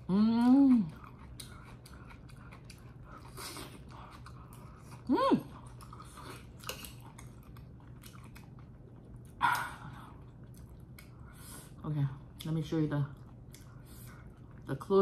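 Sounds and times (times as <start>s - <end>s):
food crunch: 0.0s - 11.3s
person chewing food: 0.0s - 14.7s.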